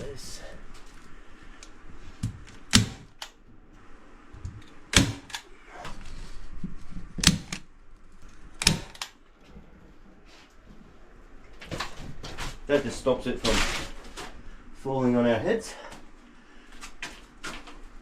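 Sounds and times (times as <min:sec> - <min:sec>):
staple gun snaps: 0:04.9 - 0:05.5, 0:08.6 - 0:09.2.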